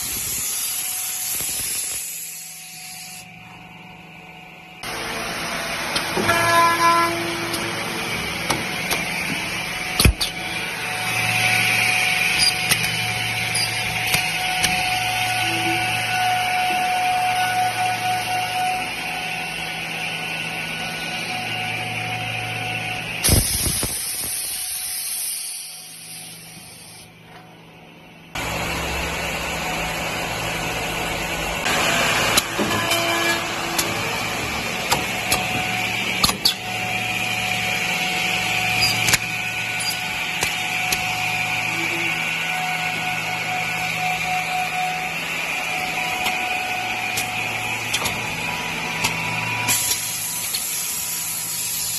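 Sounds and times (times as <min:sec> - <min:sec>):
machine motor hum: 0:26.8 - 0:51.9.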